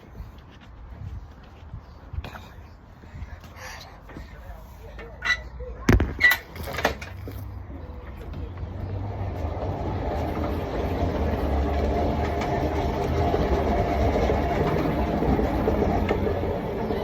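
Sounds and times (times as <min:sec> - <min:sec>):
riding mower engine running: 0:06.8 - 0:17.0.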